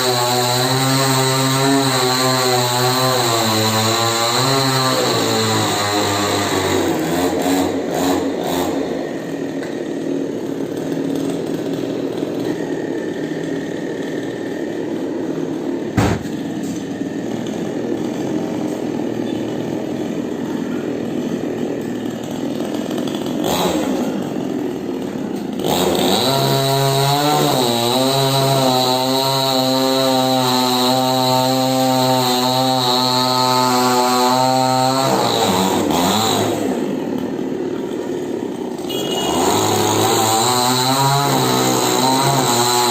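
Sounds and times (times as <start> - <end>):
chainsaw cutting wood: 0.0 - 42.9
sharp knock: 16.0 - 16.4.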